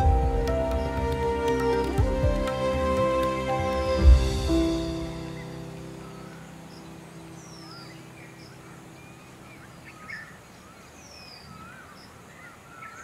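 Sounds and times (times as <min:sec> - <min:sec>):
soft background music: 0:00.0 - 0:11.2
steady outdoor hiss: 0:00.0 - 0:13.0
bird chirps: 0:04.5 - 0:13.0.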